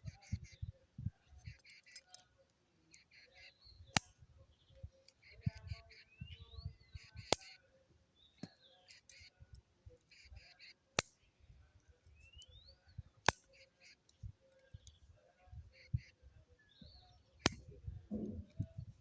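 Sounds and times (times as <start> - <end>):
birds chirping and calling: 0.0 - 19.0
loud sharp clicks: 3.9 - 4.1, 13.2 - 13.5.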